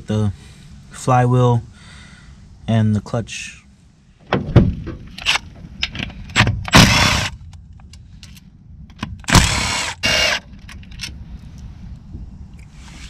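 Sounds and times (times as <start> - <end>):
power tool spinning: 6.7 - 7.3, 9.3 - 10.4
small metallic clicks: 7.4 - 9.4.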